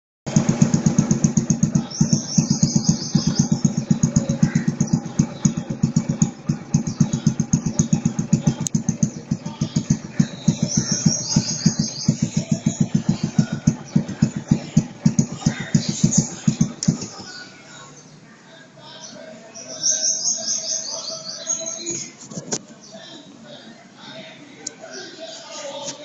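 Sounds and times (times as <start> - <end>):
small engine idling: 0.3 - 18.0.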